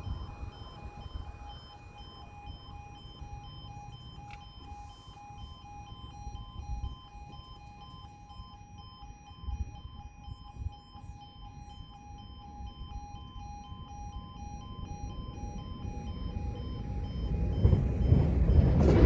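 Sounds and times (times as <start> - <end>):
level crossing alarm warble: 0.0 - 19.0
low rumble: 16.4 - 19.0.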